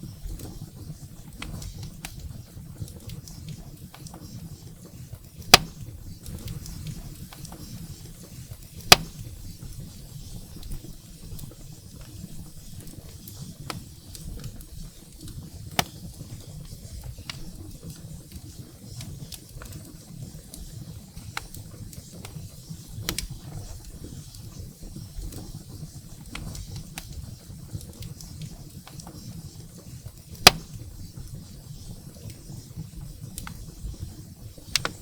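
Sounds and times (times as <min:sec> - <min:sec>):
firewood crackling and popping: 0:00.0 - 0:35.0.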